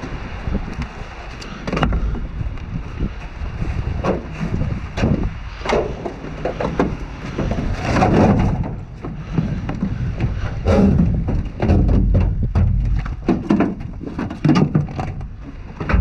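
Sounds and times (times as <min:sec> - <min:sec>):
wind buffeting microphone: 0:00.0 - 0:16.0
debris knocking and clattering: 0:05.7 - 0:16.0.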